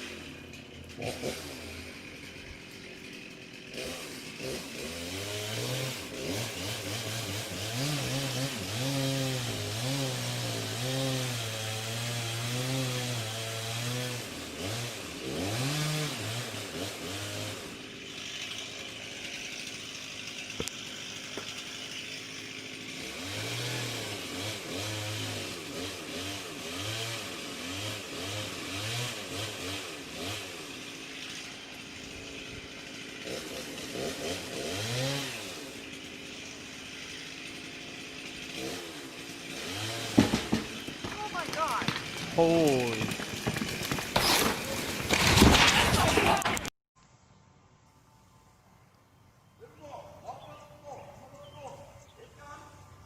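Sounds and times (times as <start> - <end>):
chainsaw engine revving: 0.0 - 46.7
sharp knocks: 40.1 - 42.4.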